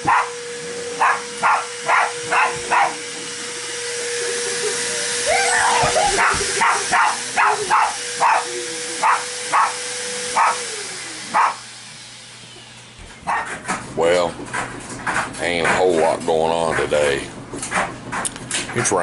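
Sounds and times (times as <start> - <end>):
dogs barking: 0.0 - 11.7, 13.2 - 13.9
vacuum cleaner motor whine: 0.0 - 14.6.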